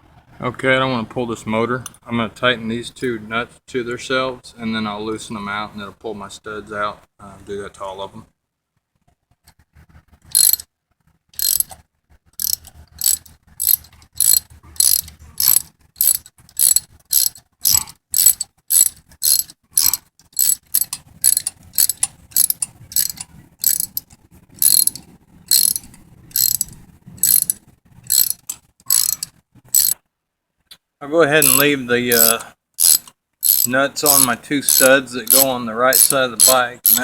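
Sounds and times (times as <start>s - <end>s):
ratchet wrench clicking: 10.3s - 10.6s, 11.4s - 11.8s, 12.4s - 30.0s, 31.4s - 37.0s.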